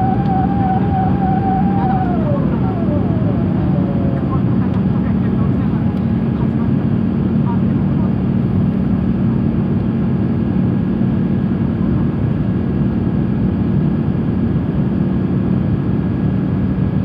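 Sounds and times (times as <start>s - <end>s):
steady low hum: 0.0s - 7.1s
airplane cabin engine and airflow noise: 0.0s - 17.0s.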